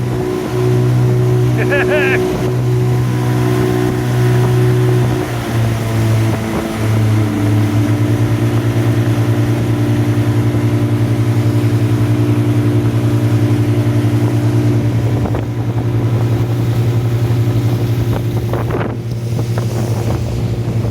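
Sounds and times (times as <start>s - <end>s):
outboard motors droning: 0.0s - 20.9s
water splashing: 0.0s - 20.9s
wind on microphone: 13.2s - 20.9s.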